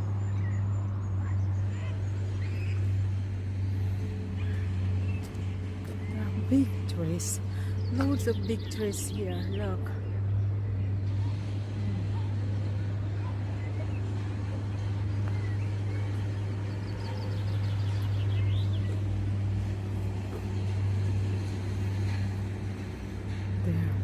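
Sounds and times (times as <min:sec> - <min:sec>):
low outdoor hum: 0:00.0 - 0:24.0.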